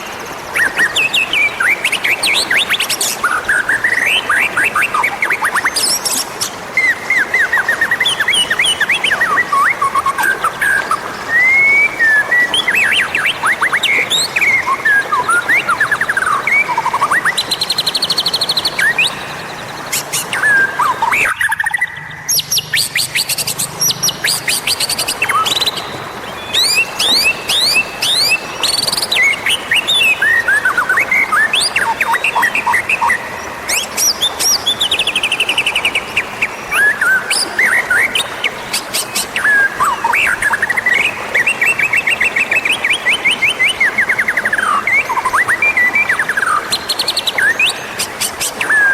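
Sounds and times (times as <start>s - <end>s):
bird singing varied whistles: 6.8s - 36.0s.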